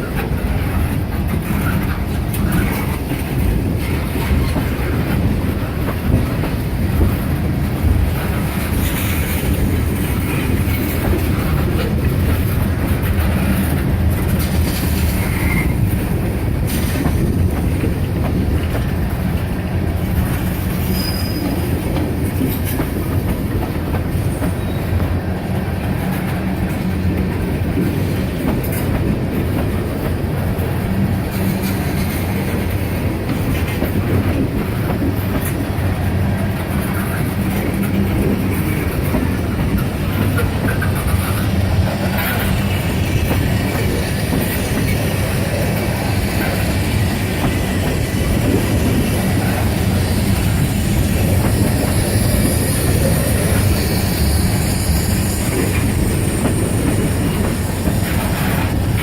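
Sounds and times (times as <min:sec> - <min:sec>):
freight train rumbling on rails: 0:00.0 - 0:59.0
faint wheel squeals: 0:20.8 - 0:21.7.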